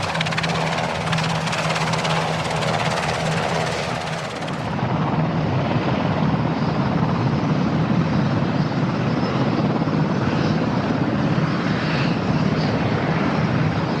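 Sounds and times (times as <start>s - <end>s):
helicopter rotor chopping: 0.0s - 5.2s.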